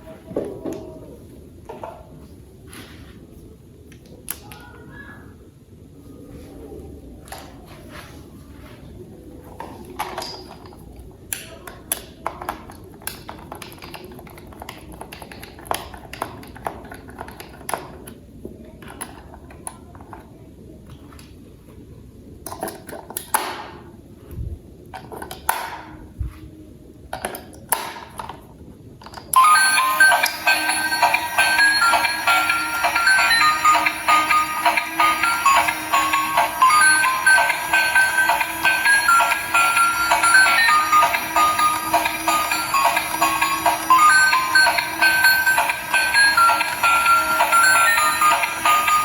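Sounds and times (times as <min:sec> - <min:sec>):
plastic toy parts clicking: 0:10.0 - 0:18.2, 0:22.5 - 0:23.5
electronic toy music: 0:29.3 - 0:49.0.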